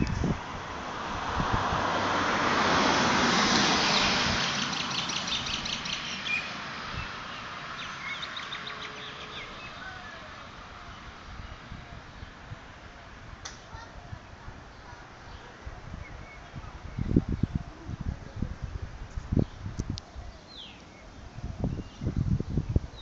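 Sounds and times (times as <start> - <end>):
small birds chirping: 3.9 - 12.6, 19.0 - 23.0.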